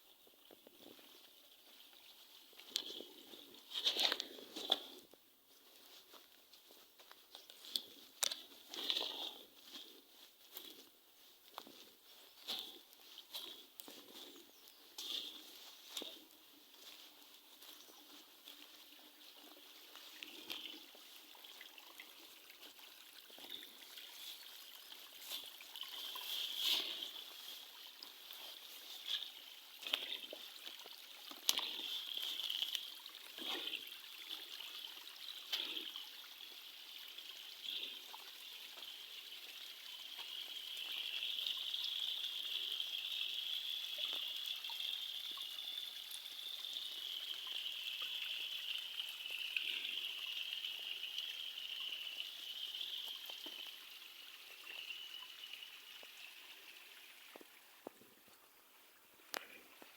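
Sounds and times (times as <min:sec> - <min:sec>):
stream babbling over stones: 0:12.3 - 0:59.9.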